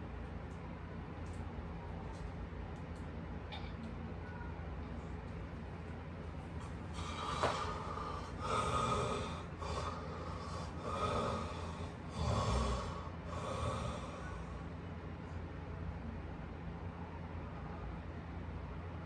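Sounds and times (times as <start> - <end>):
steady low hum: 0.0 - 19.0
person snoring: 7.0 - 14.5.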